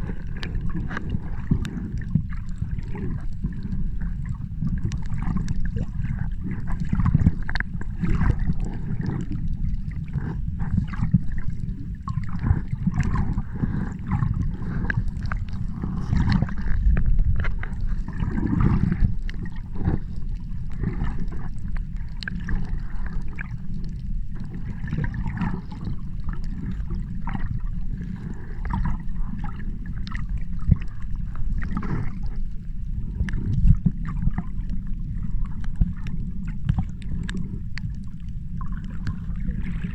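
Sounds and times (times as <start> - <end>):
sea water sloshing and gurgling: 0.0 - 39.9
steady low rumble: 0.0 - 39.9.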